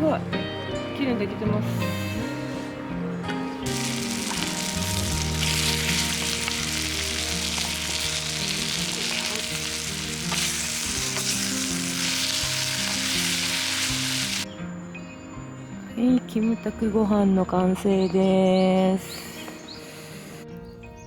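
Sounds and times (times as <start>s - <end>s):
background music: 0.0s - 21.0s
fried rice sizzling: 3.7s - 14.4s.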